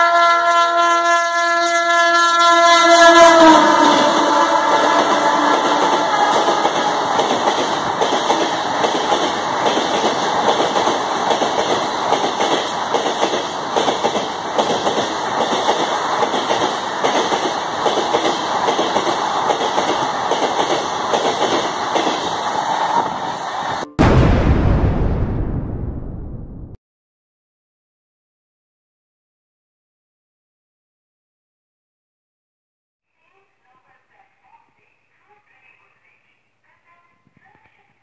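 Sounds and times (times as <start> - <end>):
train wheels rushing on rails: 3.3 - 23.9
wheels clickety-clack over rail joints: 4.0 - 23.4.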